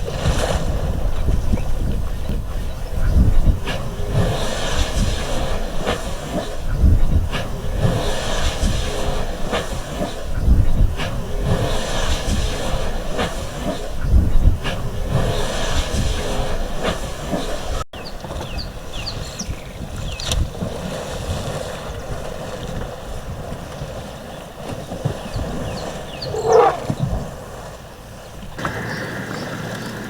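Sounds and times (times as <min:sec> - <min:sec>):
elephants splashing water: 0:00.0 - 0:30.0
small birds chirping: 0:18.0 - 0:20.4, 0:24.3 - 0:27.2, 0:28.0 - 0:30.0.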